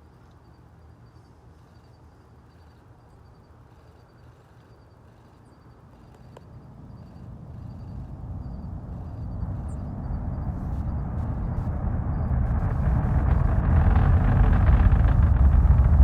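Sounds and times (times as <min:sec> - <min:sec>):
deep rumble of rocket engines: 0:05.0 - 0:16.0.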